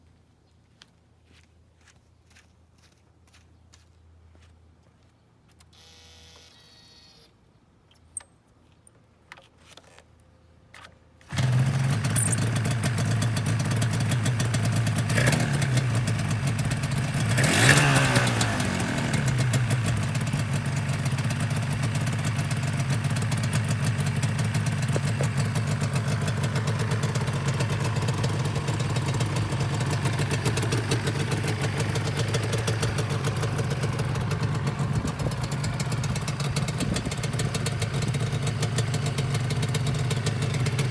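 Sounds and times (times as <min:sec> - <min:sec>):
starter whir and clicks: 0:05.5 - 0:08.4, 0:09.3 - 0:16.2, 0:23.0 - 0:38.2
motorcycle engine revving and idling: 0:11.3 - 0:40.9.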